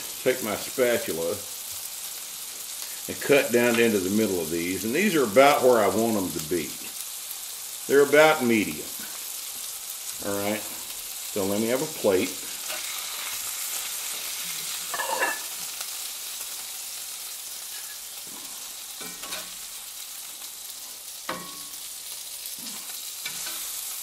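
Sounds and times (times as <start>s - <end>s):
meat sizzling in a skillet: 0.0s - 24.0s
metal spatula scraping pan: 12.6s - 13.4s, 14.5s - 15.6s, 17.6s - 19.6s, 22.7s - 23.9s.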